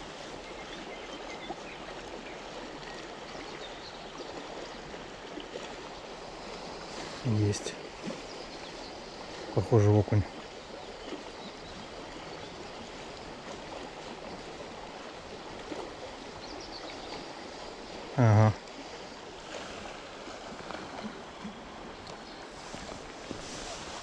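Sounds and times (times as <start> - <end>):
flowing river water: 0.0 - 24.0.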